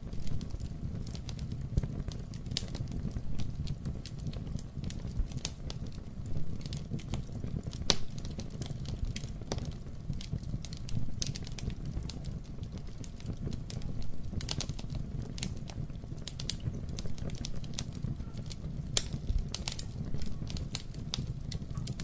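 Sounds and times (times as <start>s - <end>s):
low rumble of flames: 0.0s - 22.0s
wood crackling and popping: 0.0s - 22.0s.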